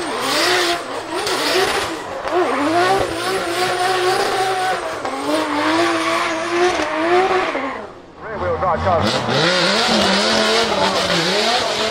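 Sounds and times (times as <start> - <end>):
tyres spinning: 0.0 - 8.0
car engine revving: 0.0 - 11.9.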